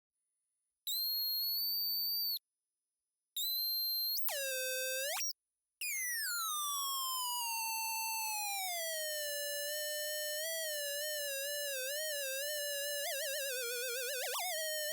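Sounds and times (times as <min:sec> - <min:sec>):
pitched electronic buzzing tones: 0:11.1 - 0:14.9.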